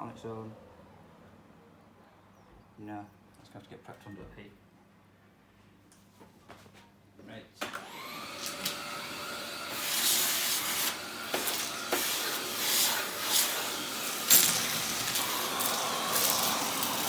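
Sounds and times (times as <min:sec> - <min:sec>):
heat gun hissing: 0:07.8 - 0:17.0.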